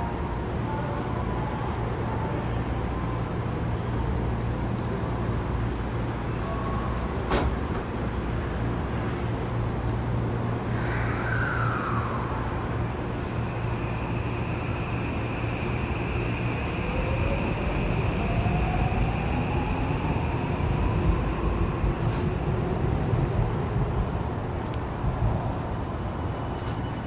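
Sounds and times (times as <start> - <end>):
whine gliding down in pitch: 10.7 - 20.1.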